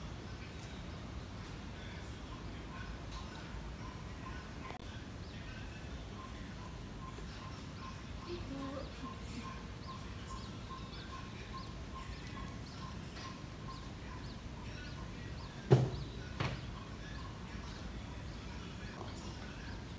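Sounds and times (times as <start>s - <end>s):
high bird chirps: 5.4s - 19.9s
sharp knocks: 15.7s - 16.6s.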